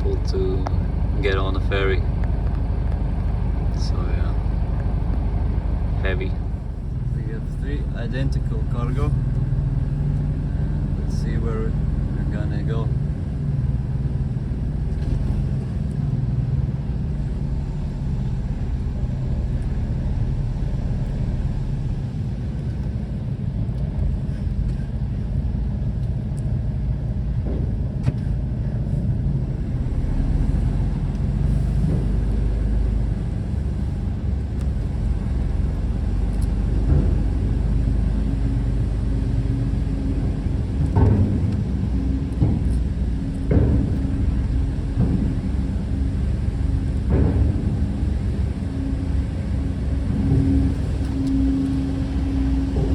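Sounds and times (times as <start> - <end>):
diesel truck engine rumbling: 0.0 - 52.9.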